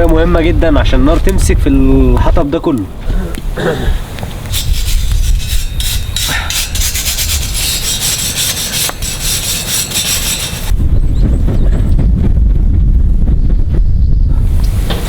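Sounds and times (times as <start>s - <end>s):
wind rumbling on microphone: 0.0s - 15.0s
firewood scraping and rustling: 2.3s - 10.8s.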